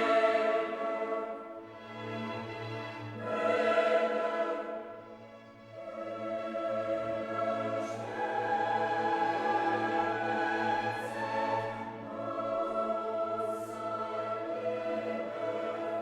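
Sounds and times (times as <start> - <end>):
choir singing long chords: 0.0 - 16.0.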